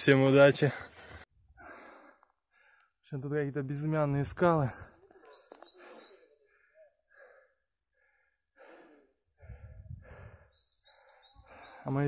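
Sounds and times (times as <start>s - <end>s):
faint breathing: 0.7s - 3.0s, 4.7s - 12.0s
songbird chirping: 3.8s - 9.4s, 10.0s - 12.0s.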